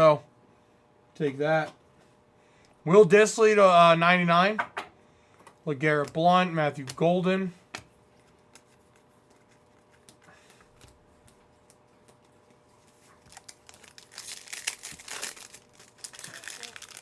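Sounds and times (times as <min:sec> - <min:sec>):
wrapper crinkling: 0:12.9 - 0:17.0
card pack wrapper tearing: 0:13.2 - 0:17.0.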